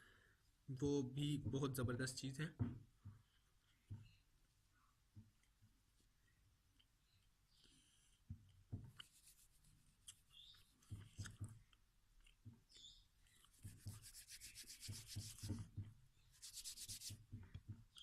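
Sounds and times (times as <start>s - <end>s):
soft knocks: 1.4s - 3.2s.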